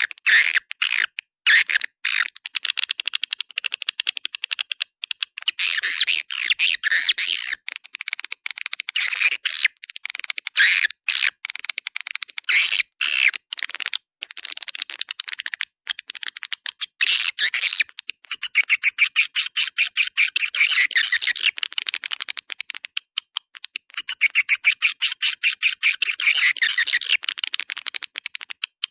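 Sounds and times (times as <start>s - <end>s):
fast clicking trills: 2.3s - 5.8s, 6.8s - 28.9s.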